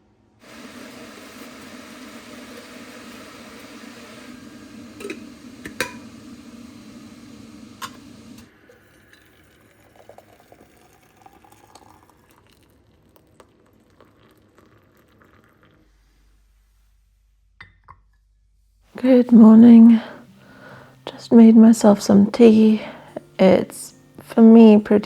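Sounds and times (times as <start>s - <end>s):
kettle clicks: 0.4s - 8.5s
water boiling in a kettle: 0.4s - 16.3s, 19.0s - 25.0s.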